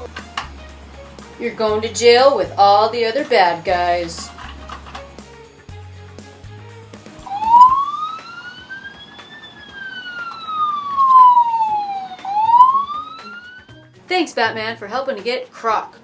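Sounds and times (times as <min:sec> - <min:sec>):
police siren wailing: 0:07.3 - 0:13.8.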